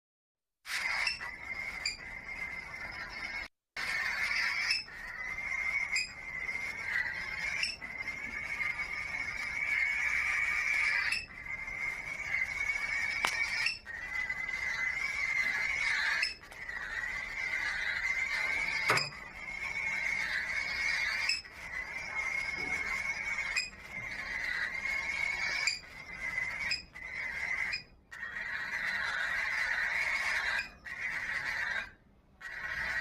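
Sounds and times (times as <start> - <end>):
cockatiel chick begging calls: 0.7 - 33.0.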